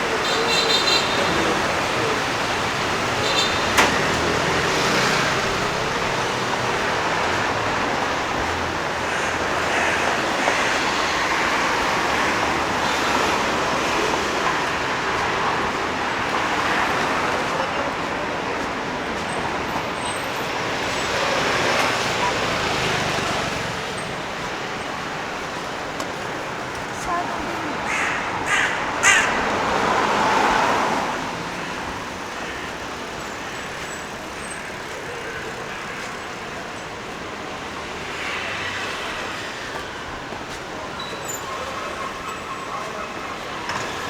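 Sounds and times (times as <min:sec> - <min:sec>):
passing cars: 0:00.0 - 0:44.0
road traffic: 0:00.0 - 0:44.0.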